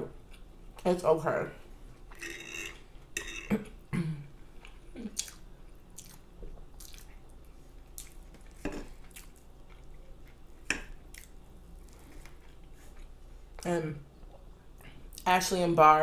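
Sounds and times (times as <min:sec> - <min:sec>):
person chewing food: 0:04.4 - 0:13.6.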